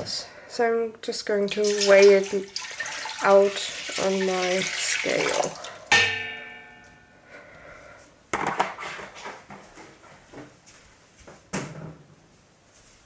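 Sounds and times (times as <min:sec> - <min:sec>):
container set down with ringing clang: 0:05.9 - 0:07.0.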